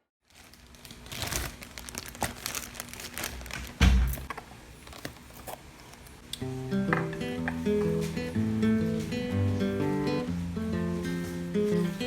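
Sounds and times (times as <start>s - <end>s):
crinkling handling sounds: 0.2s - 6.3s.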